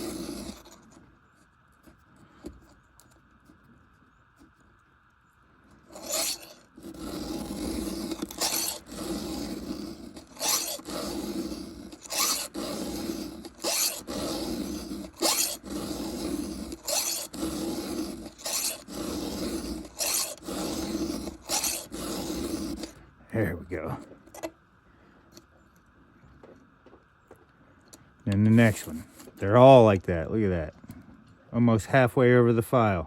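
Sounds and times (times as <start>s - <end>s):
file rasping on chainsaw chain: 0.0s - 1.0s, 5.9s - 23.0s, 24.3s - 24.5s.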